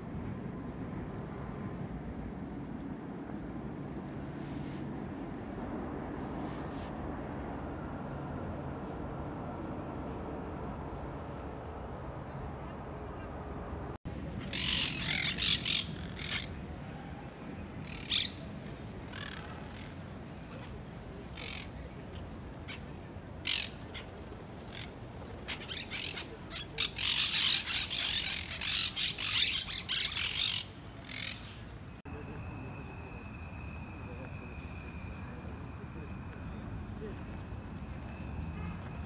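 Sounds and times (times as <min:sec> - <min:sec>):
birds squawking: 0:14.4 - 0:16.5, 0:23.4 - 0:31.7
steady high tone: 0:32.1 - 0:38.4.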